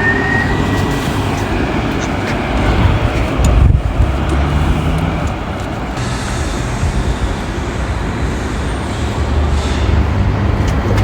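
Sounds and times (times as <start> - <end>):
rumble of vehicle traffic: 0.0 - 11.0.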